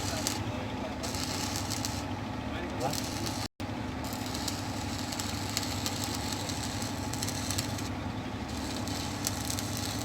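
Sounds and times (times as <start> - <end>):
engine idling: 0.0 - 10.0
faint irregular crackling: 4.1 - 7.9, 8.5 - 10.0.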